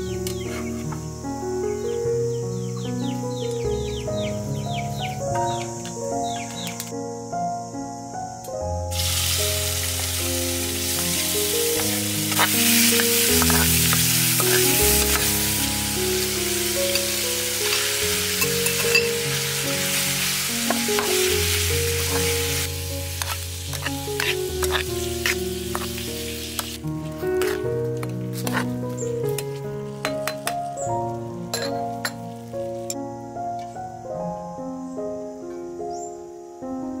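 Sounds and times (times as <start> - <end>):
background music: 0.0 - 37.0
seafood sizzling in hot oil: 8.9 - 27.5
metal ladle scraping a wok: 10.8 - 15.5, 20.7 - 26.8, 27.4 - 27.7, 28.4 - 28.8.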